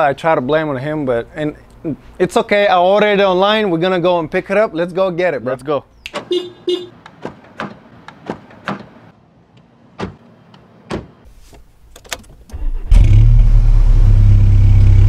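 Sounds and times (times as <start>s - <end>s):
clicks and knocks at car door: 10.0s - 11.2s
car engine starting and idling: 11.8s - 15.0s.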